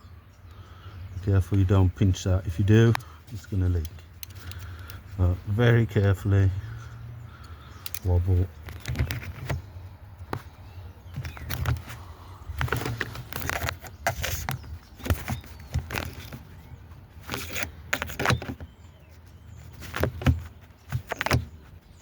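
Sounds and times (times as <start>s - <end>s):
small plastic and metal clicks: 3.8s - 5.0s, 7.4s - 9.6s.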